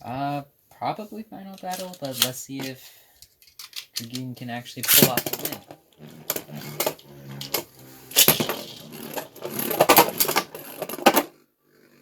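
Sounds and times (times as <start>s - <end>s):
spinning tops clashing and rattling: 1.6s - 2.7s, 4.8s - 11.2s.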